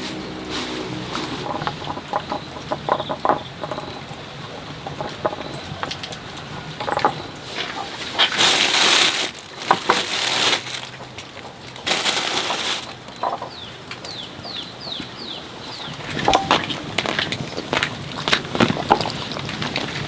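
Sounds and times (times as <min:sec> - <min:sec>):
chickens clucking: 0:00.2 - 0:09.0
scuffling and flapping: 0:05.0 - 0:13.5
loud rustling bursts: 0:07.4 - 0:13.1.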